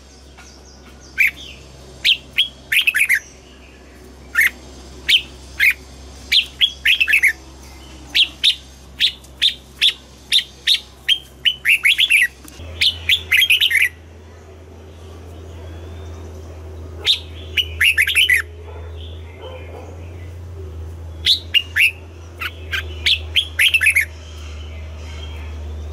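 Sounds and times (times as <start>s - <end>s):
bird singing whistled notes: 0.1s - 14.0s, 17.0s - 18.5s, 21.1s - 25.9s.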